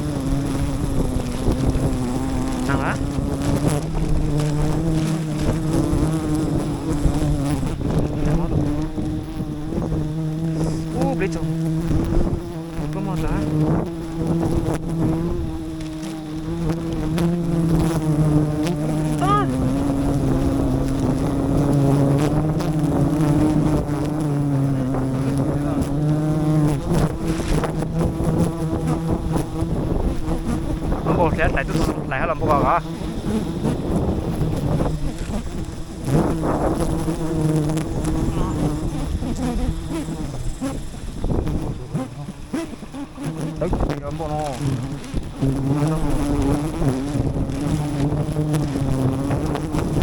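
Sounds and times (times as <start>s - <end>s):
bees buzzing: 0.0s - 50.0s
clicks and rustles: 0.5s - 9.4s.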